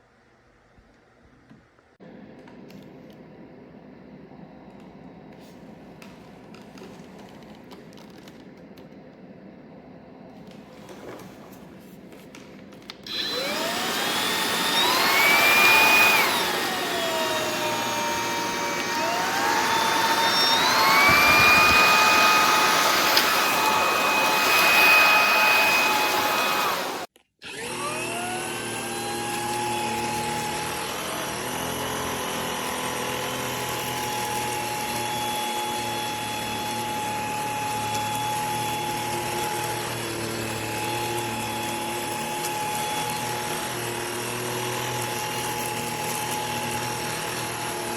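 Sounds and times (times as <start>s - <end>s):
vacuum motor whining: 12.3s - 47.9s.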